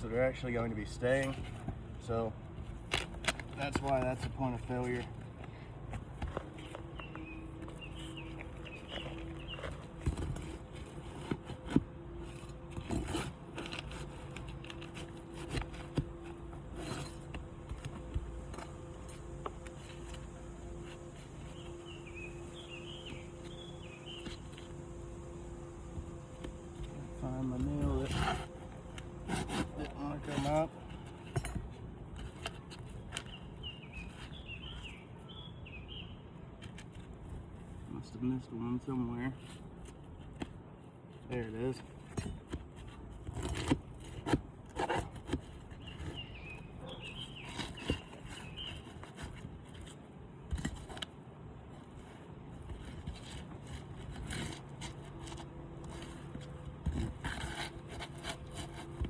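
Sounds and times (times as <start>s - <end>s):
outdoor background hum: 0.0s - 59.0s
bird chirping short notes: 20.8s - 24.7s
hand tool prying at shingles: 41.7s - 51.2s, 51.8s - 59.0s.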